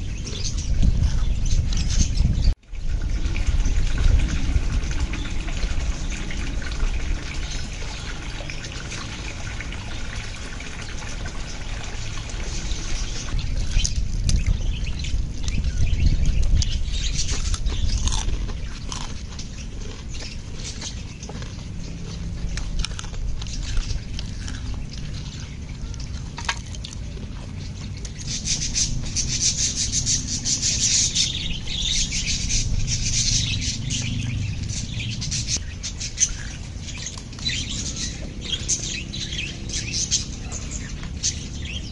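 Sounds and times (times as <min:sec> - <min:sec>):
steady low rumble: 0:00.0 - 0:41.8
birds chirping: 0:00.0 - 0:41.9.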